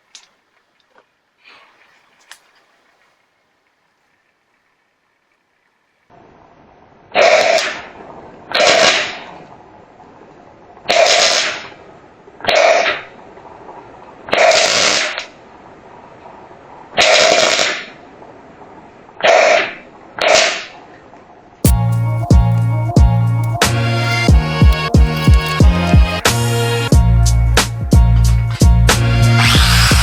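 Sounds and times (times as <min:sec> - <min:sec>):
rough buzzing welding bursts: 0:21.7 - 0:26.5.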